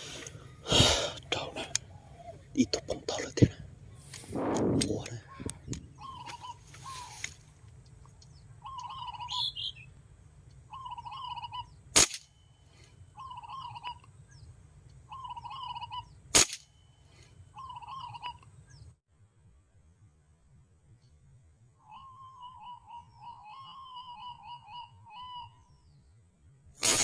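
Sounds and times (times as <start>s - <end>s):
bird calling warbled phrase: 1.2s - 4.1s, 4.8s - 7.2s, 8.6s - 9.9s, 10.7s - 11.8s, 13.2s - 14.0s, 15.1s - 16.2s, 17.6s - 18.4s, 21.8s - 25.7s
low rumble: 3.6s - 6.0s
sharp cracks of shots: 12.0s - 12.3s, 16.3s - 16.7s, 26.8s - 27.0s.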